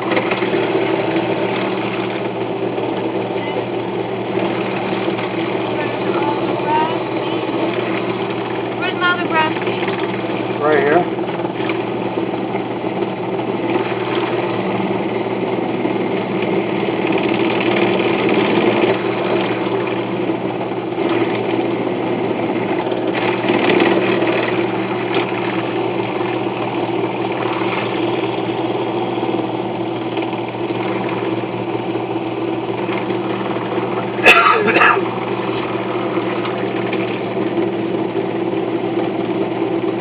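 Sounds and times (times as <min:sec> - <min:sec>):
electric power tool running: 0:04.2 - 0:06.0, 0:07.7 - 0:17.2, 0:17.8 - 0:25.1, 0:26.0 - 0:32.9, 0:36.6 - 0:40.0.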